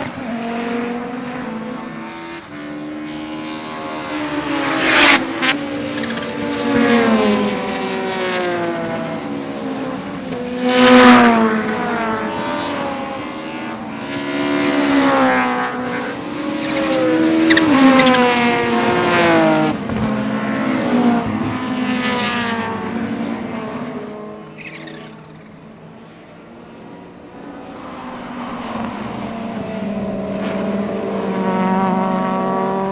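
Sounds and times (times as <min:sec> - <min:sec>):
race car engine at full throttle: 0:00.0 - 0:32.9.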